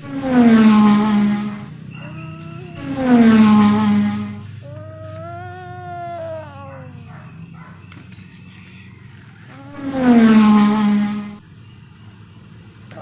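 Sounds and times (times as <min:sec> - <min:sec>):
person making vroom noises: 0:02.0 - 0:07.1, 0:09.4 - 0:10.5.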